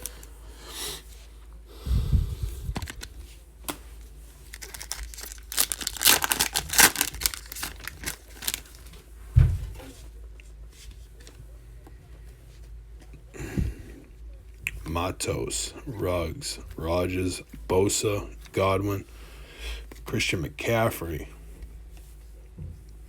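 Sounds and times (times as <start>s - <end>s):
wrapper tearing and crinkling: 2.8s - 3.2s, 4.4s - 8.9s.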